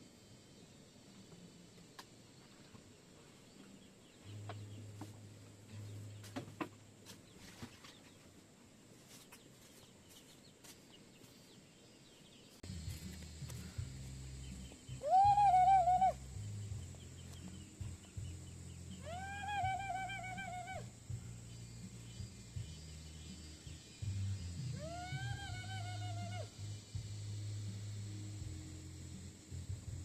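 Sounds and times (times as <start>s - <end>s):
low hum: 12.6s - 30.0s.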